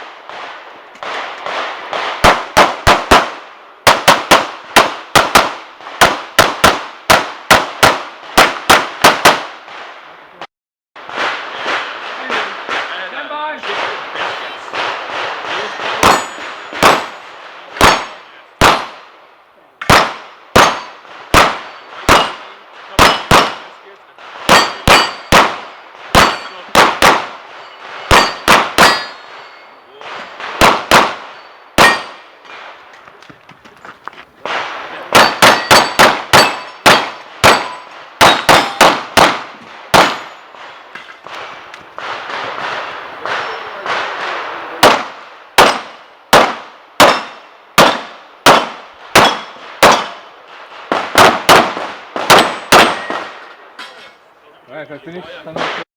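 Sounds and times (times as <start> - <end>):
pistol shots: 0.0 - 9.8, 11.1 - 19.1, 19.8 - 32.7, 34.4 - 53.5
ringing of struck steel targets: 14.2 - 18.9, 19.8 - 23.7, 24.5 - 32.5, 35.0 - 41.4, 42.0 - 44.1, 44.8 - 50.3, 51.2 - 54.2.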